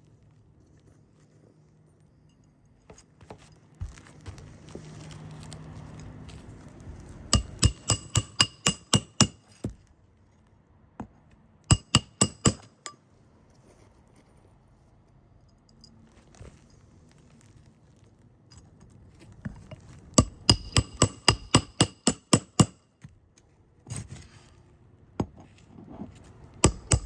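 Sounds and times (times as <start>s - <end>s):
hammer striking nail: 7.3s - 9.8s, 11.7s - 13.0s, 20.2s - 22.8s, 26.6s - 27.0s.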